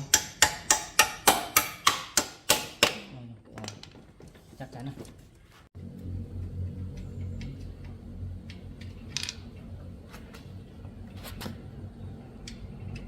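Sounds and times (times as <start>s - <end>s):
steady low hum: 5.4s - 13.0s.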